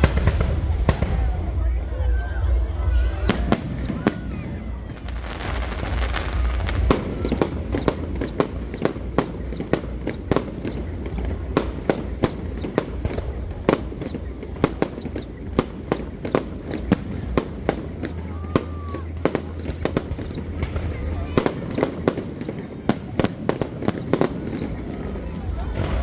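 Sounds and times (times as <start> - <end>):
fireworks bangs: 0.0 - 26.0
fireworks crackling: 0.0 - 26.0.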